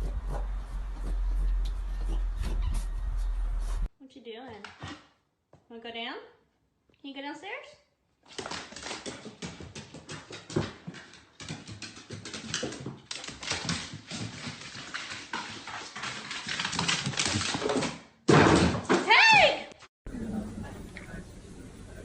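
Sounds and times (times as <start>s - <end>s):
dog's claws tapping: 8.3s - 17.9s.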